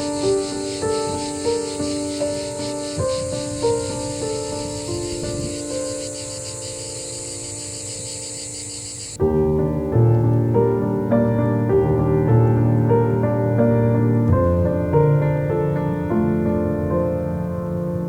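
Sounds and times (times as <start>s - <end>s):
cicadas chorus: 0.0s - 9.2s
piano music: 0.0s - 18.0s.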